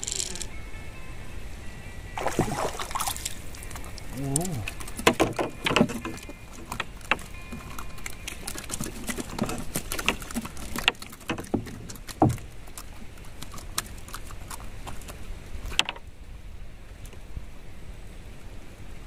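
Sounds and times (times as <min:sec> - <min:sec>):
knocks and taps on wooden boat: 0:04.7 - 0:12.5.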